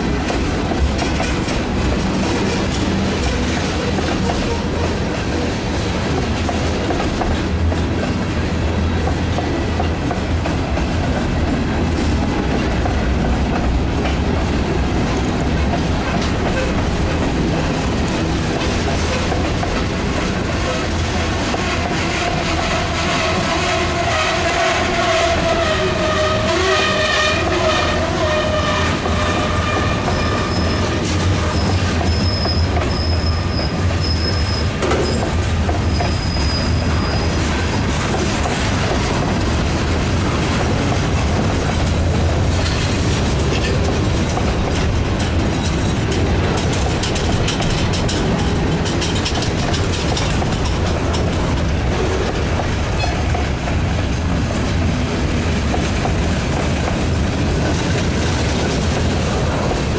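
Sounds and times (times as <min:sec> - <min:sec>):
wheels clacking over rail joints: 0:00.0 - 0:26.4, 0:27.9 - 0:59.9
freight train rumbling past: 0:00.0 - 0:59.9
wheel squeal: 0:29.6 - 0:37.4.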